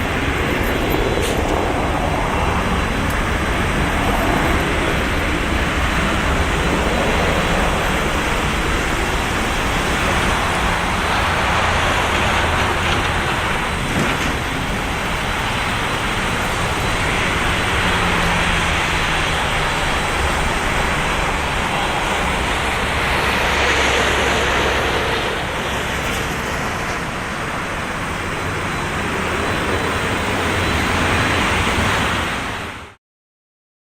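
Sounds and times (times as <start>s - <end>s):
jet engines rushing: 0.0s - 33.0s.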